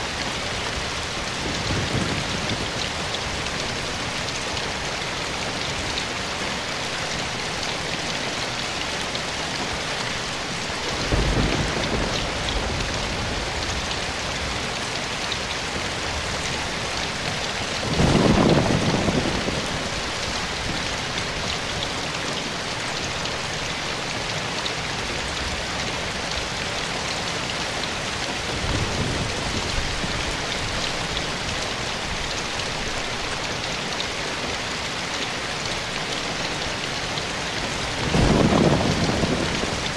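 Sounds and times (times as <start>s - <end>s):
steady rain falling: 0.0s - 39.9s
low rumbles of thunder: 10.9s - 14.6s, 17.8s - 20.9s, 38.0s - 39.9s.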